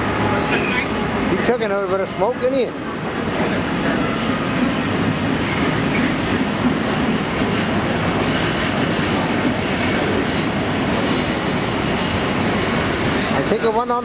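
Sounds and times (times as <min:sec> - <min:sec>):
thin high wheel squeal: 0:11.1 - 0:13.3.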